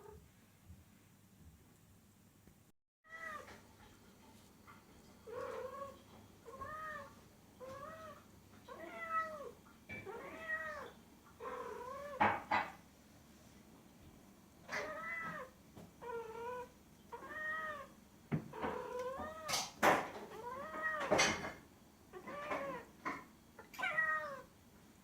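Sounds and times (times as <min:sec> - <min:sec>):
cat meowing: 0:03.1 - 0:03.6, 0:05.3 - 0:12.3, 0:14.7 - 0:17.9, 0:20.3 - 0:21.2, 0:22.2 - 0:22.9, 0:23.6 - 0:24.5.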